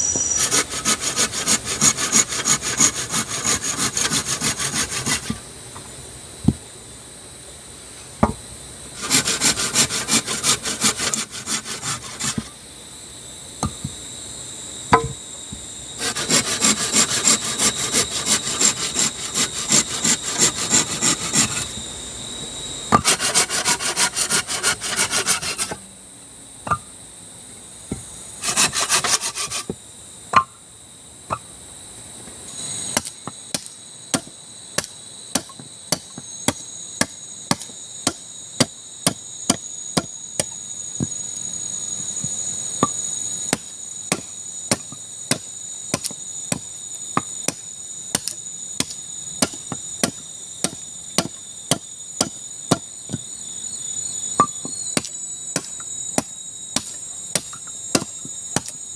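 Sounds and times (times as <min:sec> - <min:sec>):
insects shrilling: 0:00.0 - 0:26.0, 0:27.7 - 0:30.6, 0:32.5 - 0:58.9
rasping strokes on wood: 0:00.4 - 0:05.4, 0:09.0 - 0:12.5, 0:16.0 - 0:21.7, 0:22.9 - 0:25.8, 0:28.4 - 0:29.7
sharp wooden knocks: 0:14.9 - 0:15.2.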